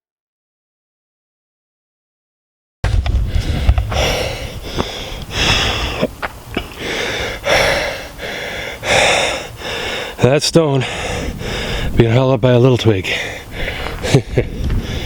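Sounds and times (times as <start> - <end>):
person breathing hard: 3.0 - 10.2, 10.8 - 12.0, 13.1 - 15.0.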